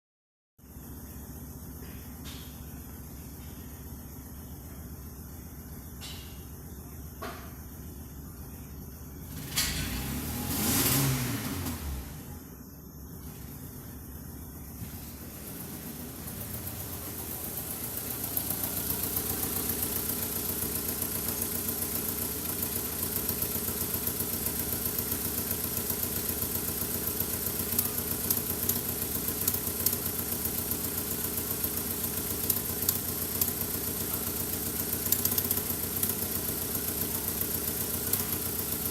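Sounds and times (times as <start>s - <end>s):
car engine idling: 0.7s - 38.9s
sharp engine ticks: 16.2s - 38.9s.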